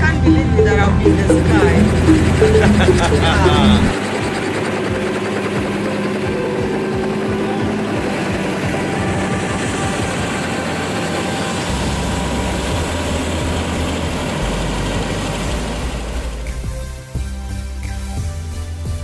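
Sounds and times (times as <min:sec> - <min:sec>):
deep hum: 0:00.0 - 0:05.0, 0:11.6 - 0:18.4
helicopter engine and rotor: 0:00.0 - 0:17.2.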